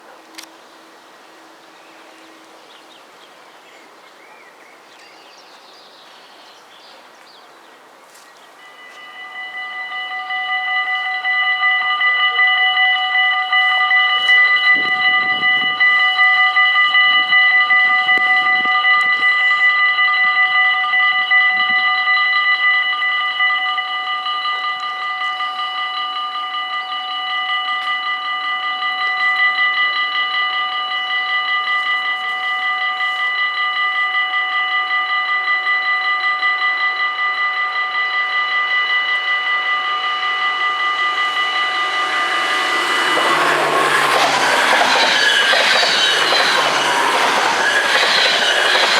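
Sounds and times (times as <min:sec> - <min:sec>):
approaching train: 0:00.0 - 0:48.9
level crossing bells ringing: 0:08.6 - 0:48.9.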